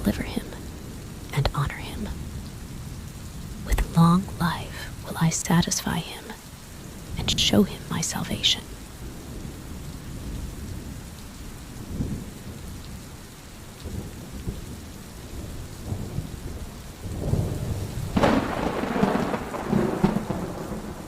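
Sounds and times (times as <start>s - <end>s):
steady rain: 0.0s - 21.0s
rolling thunder: 13.8s - 21.0s
loud thunderclap: 15.4s - 21.0s.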